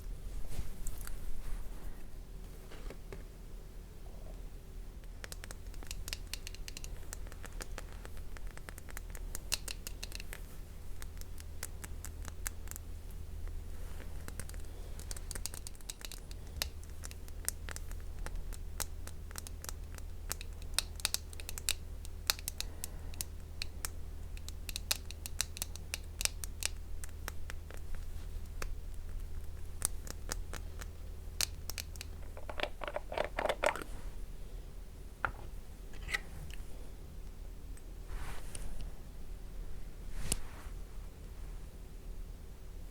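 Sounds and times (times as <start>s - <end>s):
low steady hum: 0.0s - 42.9s
clicks taps and scratchy strokes: 5.0s - 12.9s, 13.9s - 34.0s.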